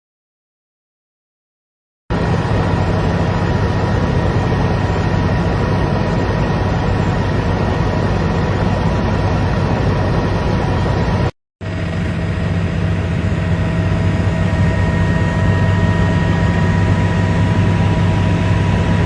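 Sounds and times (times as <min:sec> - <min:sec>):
helicopter engine and rotor drone: 0:02.1 - 0:19.0.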